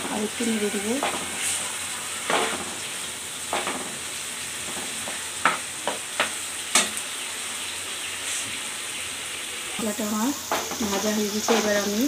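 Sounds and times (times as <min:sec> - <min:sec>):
food sizzling in a wok: 0:00.0 - 0:12.0
spatula scraping and knocking pan: 0:01.0 - 0:01.6, 0:02.3 - 0:02.8, 0:03.5 - 0:04.0, 0:04.6 - 0:07.0, 0:10.5 - 0:12.0.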